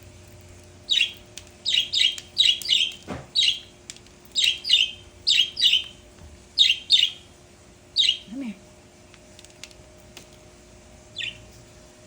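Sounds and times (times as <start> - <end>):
budgerigars chirping: 0.9 - 3.7, 4.4 - 6.0, 6.6 - 7.3, 8.0 - 8.3, 11.2 - 11.5.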